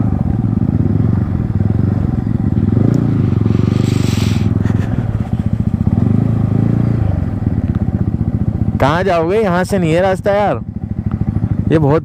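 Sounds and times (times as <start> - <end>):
motorcycle engine running: 0.0 - 12.0
brief hiss: 3.6 - 4.6.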